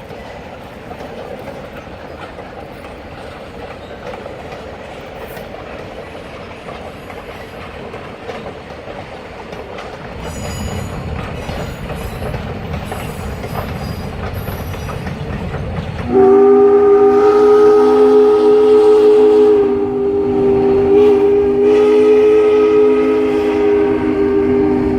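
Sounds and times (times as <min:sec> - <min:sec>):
train rumble and wheel clatter: 0:00.0 - 0:24.9
locomotive air horn chord: 0:16.1 - 0:24.9.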